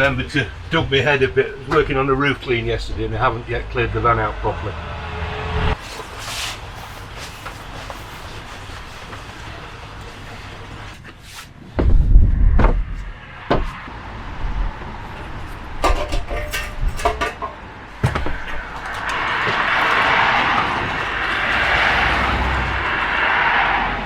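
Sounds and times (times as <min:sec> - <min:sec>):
equipment thumping and clattering: 0:11.6 - 0:13.8, 0:15.8 - 0:21.0.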